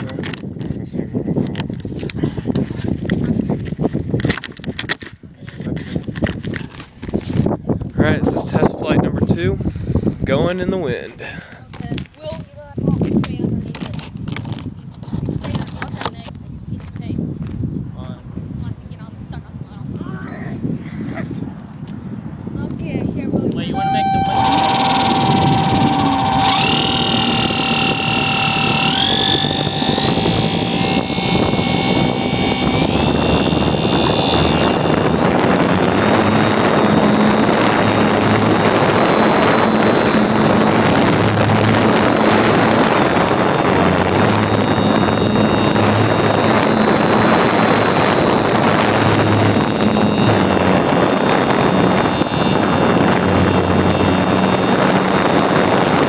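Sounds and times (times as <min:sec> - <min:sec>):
model airplane motor whining: 0:23.6 - 0:56.0.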